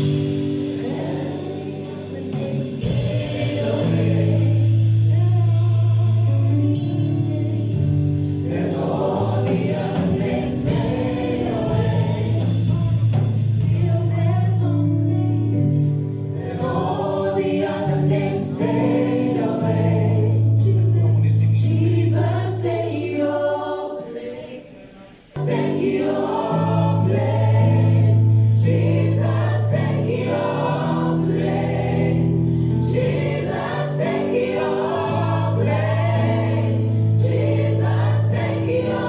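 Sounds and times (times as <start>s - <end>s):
held bass notes: 0.0s - 22.1s
gospel choir singing: 0.0s - 39.0s.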